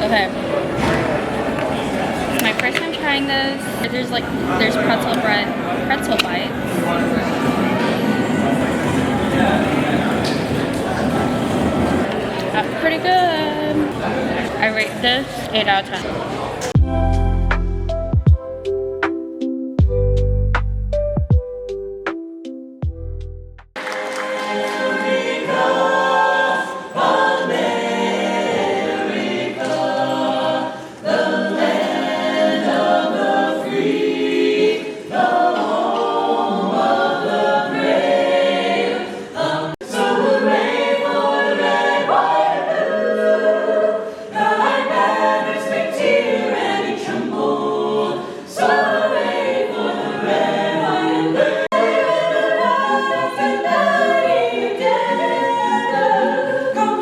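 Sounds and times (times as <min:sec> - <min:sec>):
choir singing a cappella: 0:23.8 - 0:57.0.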